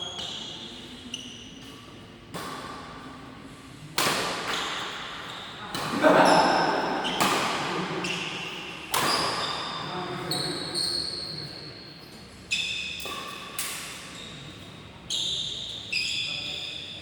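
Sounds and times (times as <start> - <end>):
racket hitting shuttlecock: 2.3 - 2.9, 4.0 - 8.0, 8.8 - 9.6
shoes squeaking on court: 4.5 - 7.4, 8.0 - 11.6, 12.5 - 17.0.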